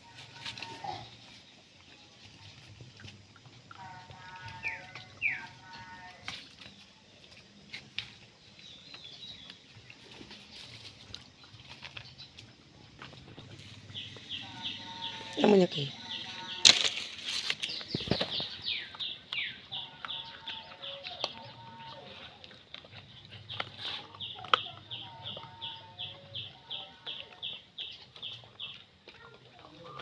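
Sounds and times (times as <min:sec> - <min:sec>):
bird chirping: 0:08.4 - 0:22.3.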